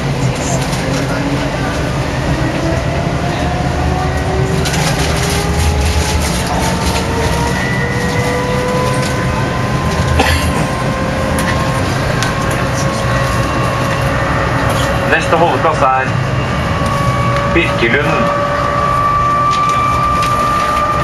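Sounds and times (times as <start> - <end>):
tram low rumble: 0.0 - 21.0
tram motor whine: 0.0 - 21.0.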